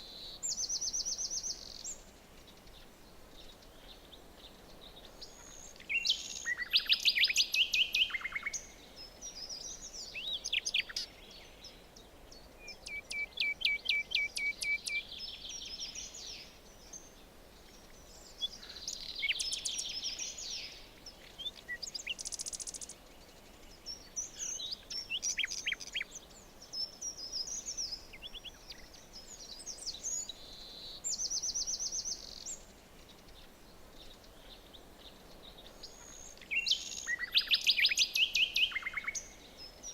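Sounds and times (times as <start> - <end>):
faint forest background hiss: 0.0 - 39.9
songbirds singing: 0.0 - 39.9.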